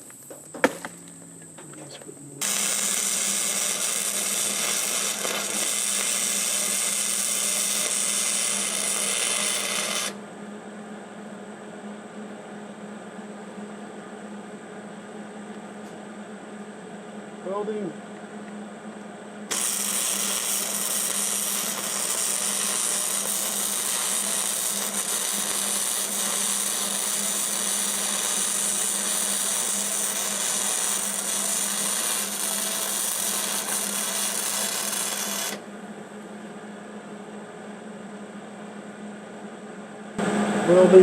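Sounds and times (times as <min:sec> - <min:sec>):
welder arc crackling and hissing: 0:00.0 - 0:10.2, 0:19.5 - 0:35.6.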